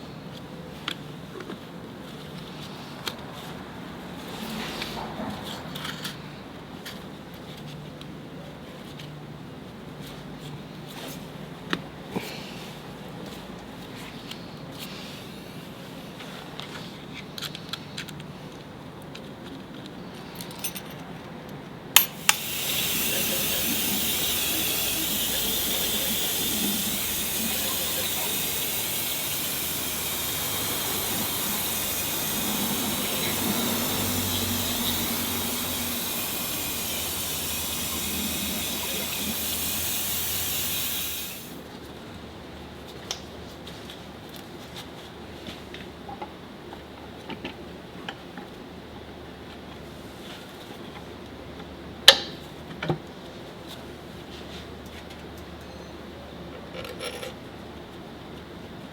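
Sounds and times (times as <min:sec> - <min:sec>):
loud hiss of air or spray: 0:22.0 - 0:41.6.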